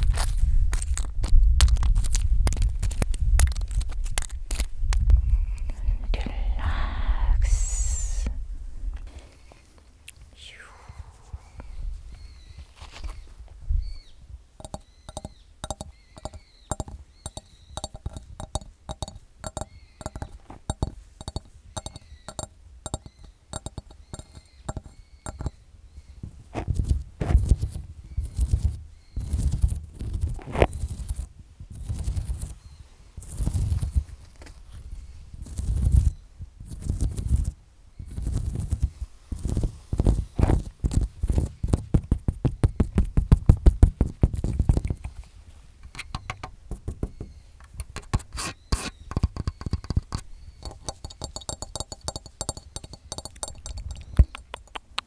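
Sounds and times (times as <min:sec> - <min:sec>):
fingernails tapping: 0:14.6 - 0:25.6, 0:45.8 - 0:55.0
fingernails scraping and rubbing: 0:26.6 - 0:32.6, 0:33.2 - 0:34.0, 0:38.1 - 0:54.8.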